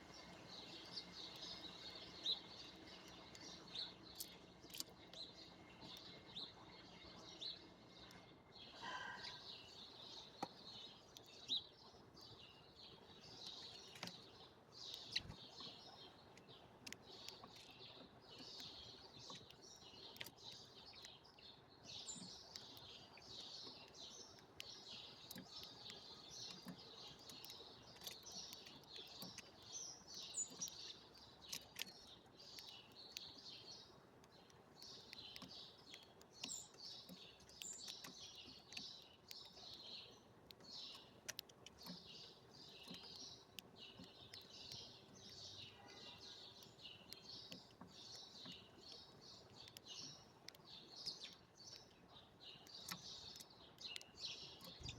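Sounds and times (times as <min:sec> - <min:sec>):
small birds chirping: 0:00.0 - 0:54.9
sharp clicks: 0:22.1 - 0:45.6, 0:46.4 - 0:54.9.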